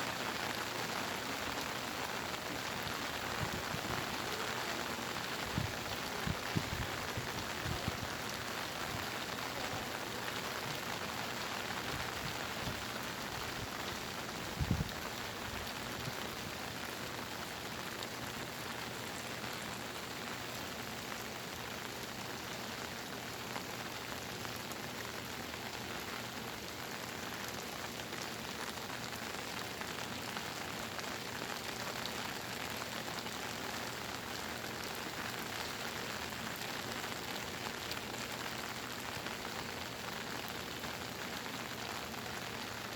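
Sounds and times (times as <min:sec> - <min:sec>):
heavy rain pouring: 0:00.0 - 0:42.9.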